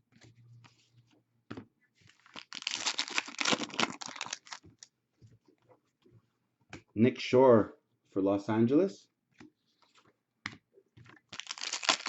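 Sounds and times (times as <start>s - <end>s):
foil wrapper tearing open: 2.4s - 4.6s, 11.4s - 12.0s
cards rustling and clicking: 9.4s - 12.0s.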